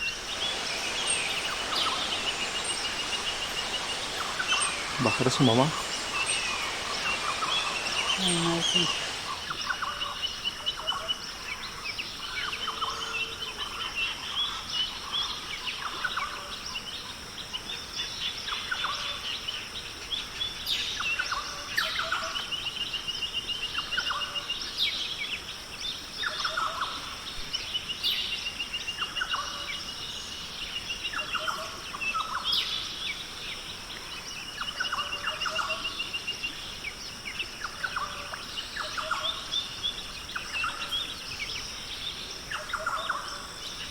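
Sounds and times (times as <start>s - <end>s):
bird rapid trill: 0.0s - 9.7s
steady high hiss: 0.0s - 43.9s.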